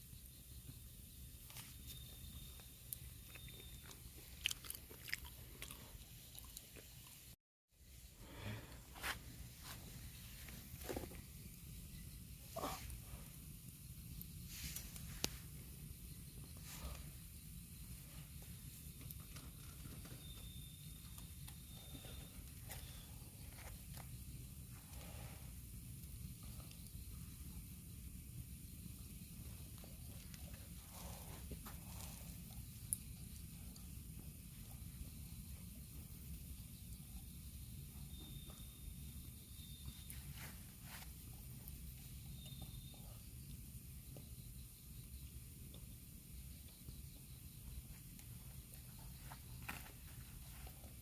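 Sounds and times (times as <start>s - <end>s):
low steady hiss: 0.0s - 4.5s, 5.2s - 51.0s.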